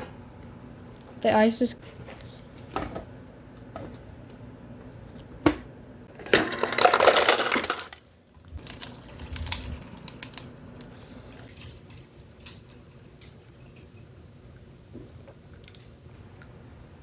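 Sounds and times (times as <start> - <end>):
ice cubes clattering: 6.2 - 10.6.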